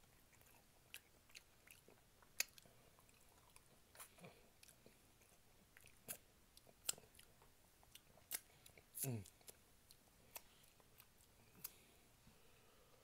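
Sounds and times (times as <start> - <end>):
quiet chewing: 0.0 - 12.5
wet mouth smacks and clicks: 8.0 - 8.8.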